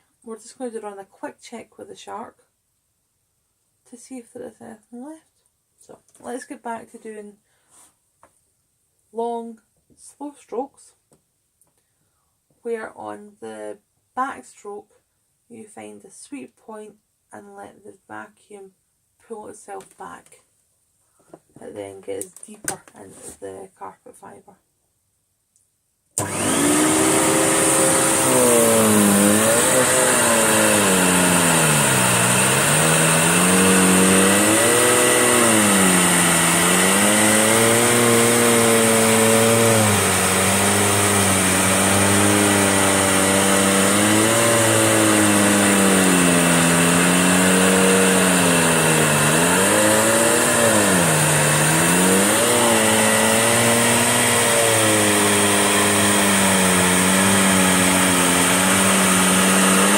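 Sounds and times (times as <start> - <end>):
vacuum cleaner on carpet: 26.2 - 59.9.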